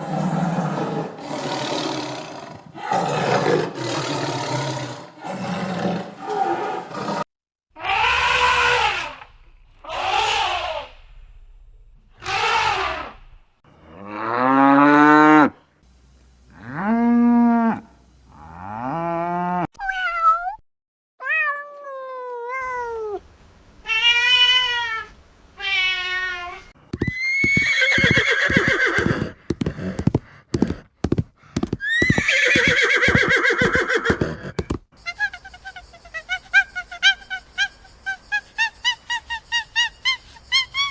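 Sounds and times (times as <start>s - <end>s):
drawn-out pitched animal calls: 27.0s - 30.8s, 31.8s - 34.7s
quick gliding animal calls: 27.1s - 29.4s.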